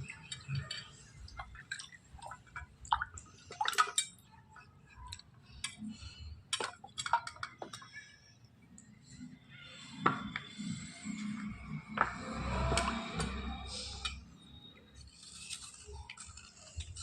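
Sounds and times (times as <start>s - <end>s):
water dripping: 0.0s - 8.0s.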